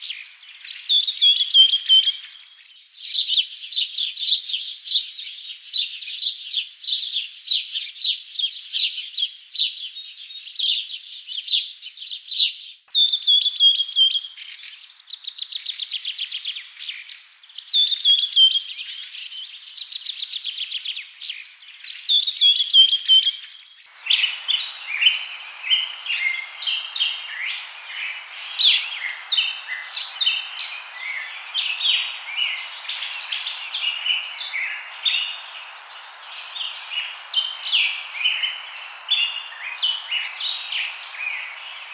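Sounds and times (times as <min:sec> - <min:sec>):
background hiss: 0:00.0 - 0:41.9
songbirds chirping: 0:00.0 - 0:41.9
bird trills sliding down: 0:24.0 - 0:41.9.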